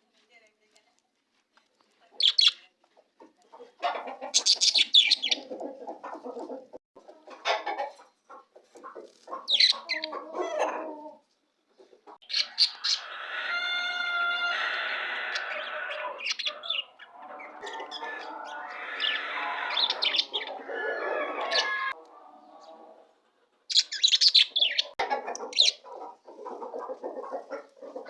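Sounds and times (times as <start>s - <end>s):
budgerigars chirping and chattering: 2.2s - 2.6s, 4.2s - 6.3s, 9.3s - 10.2s, 12.2s - 13.4s, 15.2s - 22.0s, 23.7s - 26.6s
evenly pitched call or tone: 14.5s - 22.8s.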